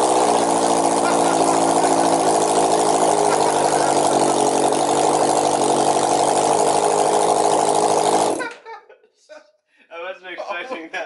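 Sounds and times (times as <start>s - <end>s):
motorcycle engine idling loudly: 0.0s - 8.5s.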